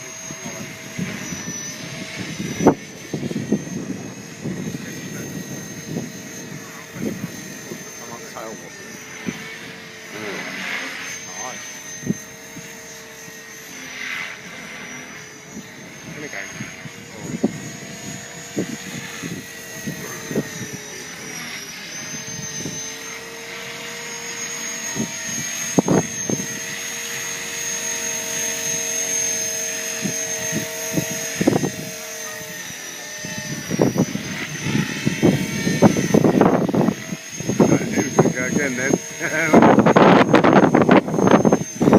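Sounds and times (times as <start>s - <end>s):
rc helicopter rotor whine: 0.0s - 41.9s
wind buffeting microphone: 0.3s - 8.5s, 15.5s - 21.2s, 24.9s - 26.8s, 29.7s - 41.9s.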